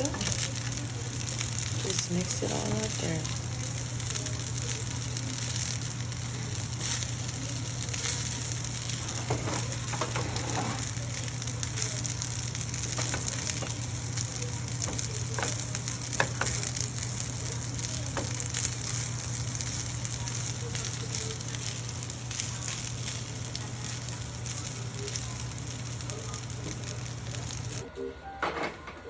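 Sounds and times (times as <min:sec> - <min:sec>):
fried rice sizzling in a pan: 0:00.0 - 0:27.9
utensil scraping a pan: 0:09.0 - 0:11.0.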